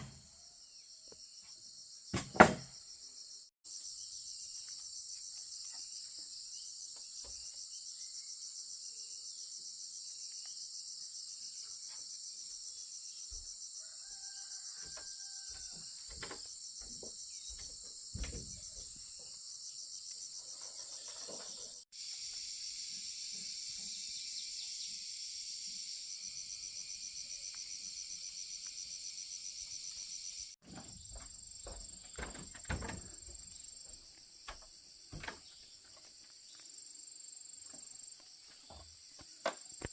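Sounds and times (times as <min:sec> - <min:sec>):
insects trilling: 0:00.1 - 0:39.9.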